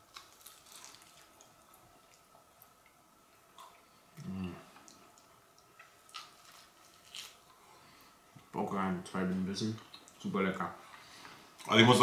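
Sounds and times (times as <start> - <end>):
person humming mmm: 4.2 - 4.7.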